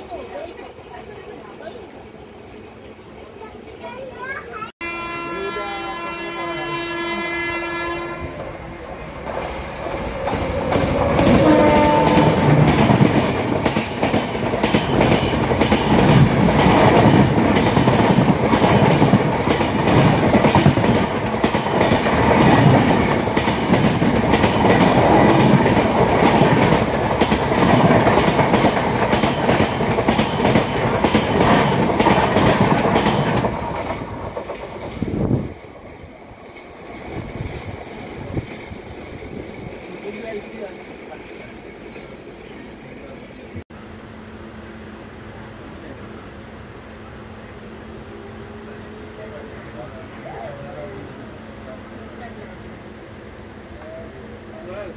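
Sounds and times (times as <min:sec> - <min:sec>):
train wheels clattering on rails: 0:08.4 - 0:42.8.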